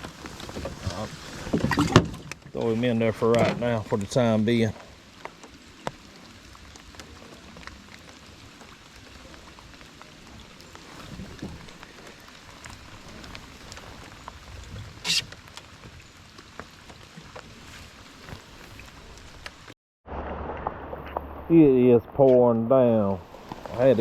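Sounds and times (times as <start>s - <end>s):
heavy rain falling: 0.0s - 22.0s, 22.9s - 24.0s.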